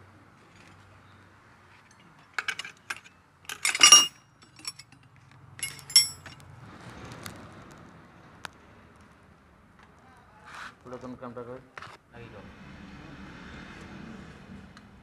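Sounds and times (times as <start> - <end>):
metal tools clinking: 1.8 - 5.0, 5.6 - 6.4.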